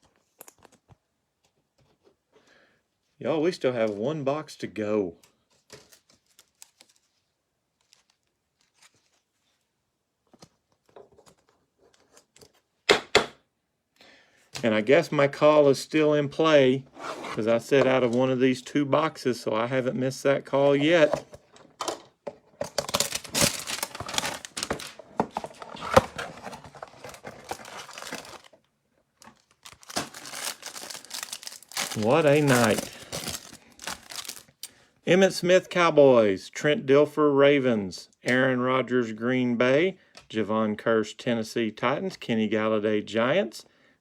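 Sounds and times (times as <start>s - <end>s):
cardboard box being opened: 22.9s - 28.5s, 29.3s - 34.4s.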